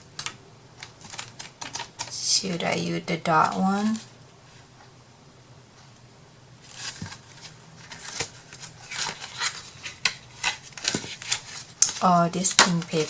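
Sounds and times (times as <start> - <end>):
paper rustling: 0.2 - 2.2, 3.4 - 4.7, 6.6 - 13.0.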